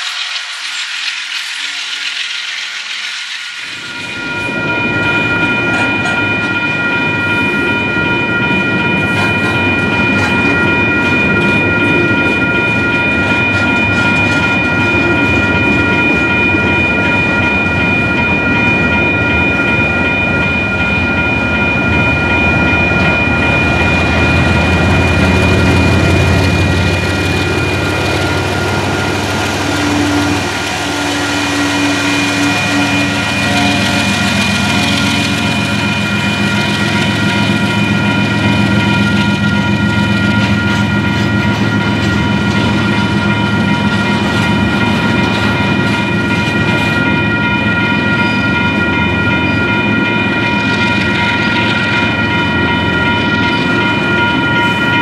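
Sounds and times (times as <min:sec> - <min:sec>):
diesel locomotive engine: 0:00.0 - 0:55.0
train wheels on rails: 0:00.0 - 0:55.0
crossing warning bell ringing: 0:03.5 - 0:55.0.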